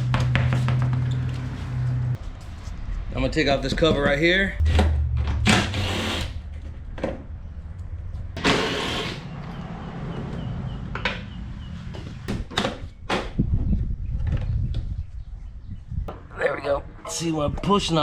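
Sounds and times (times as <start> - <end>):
low steady rumble: 1.6 - 8.4.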